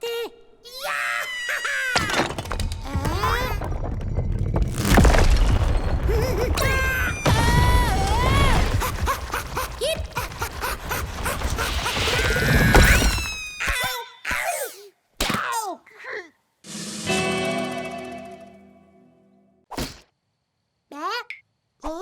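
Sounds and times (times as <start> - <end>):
cartoon crashes and thuds: 2.0 - 13.9
squeaky cartoon vocalizations: 12.8 - 15.7.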